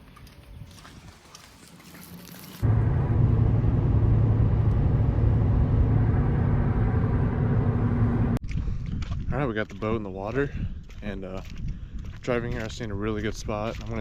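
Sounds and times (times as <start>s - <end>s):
vehicle engine rumbling: 0.0s - 8.4s.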